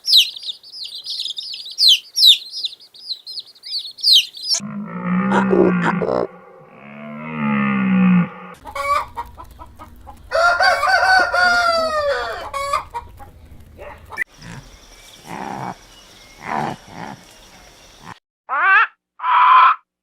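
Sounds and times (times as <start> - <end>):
chickens clucking: 0.0 - 4.6, 8.6 - 14.6
rooster crowing: 8.2 - 14.2.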